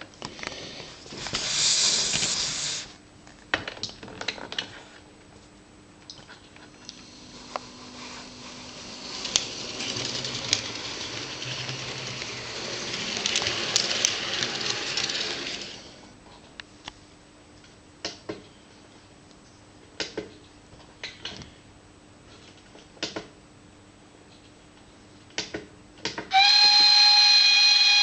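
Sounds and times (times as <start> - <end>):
model locomotive running: 7.0 - 16.0, 26.3 - 28.0.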